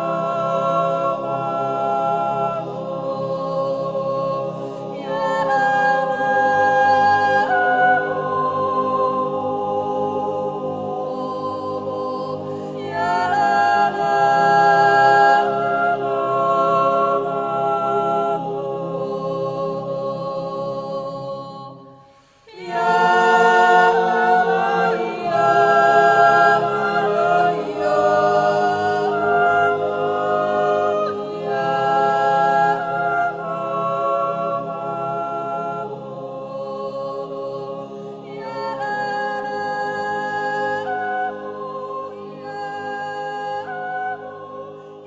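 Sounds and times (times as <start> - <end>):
choir singing held chords: 0.0 - 45.0.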